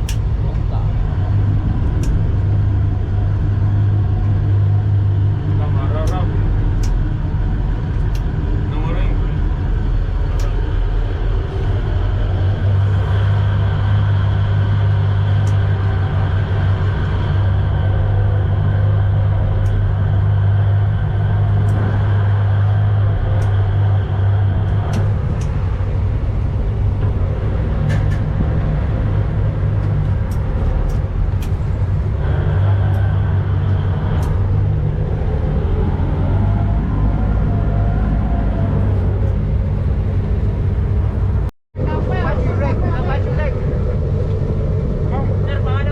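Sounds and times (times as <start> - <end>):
boat engine drone: 0.0 - 45.9.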